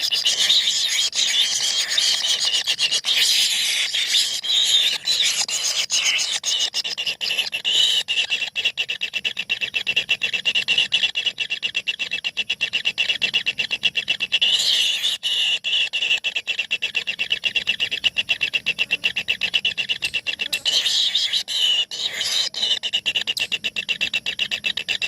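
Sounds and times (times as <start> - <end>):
chicks begging chatter: 10.9 - 25.0.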